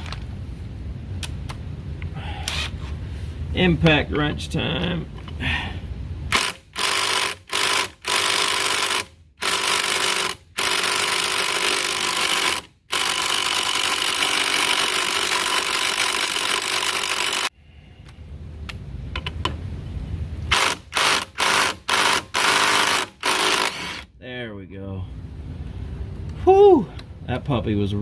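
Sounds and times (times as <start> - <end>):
impact wrench hammering: 20.5 - 24.0.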